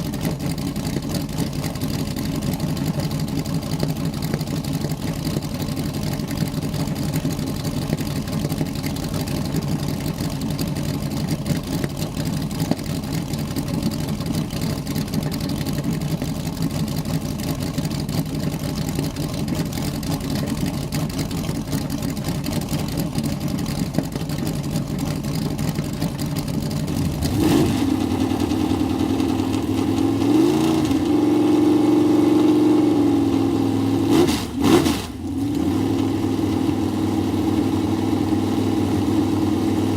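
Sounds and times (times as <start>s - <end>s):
race car engine revving: 26.8s - 39.9s.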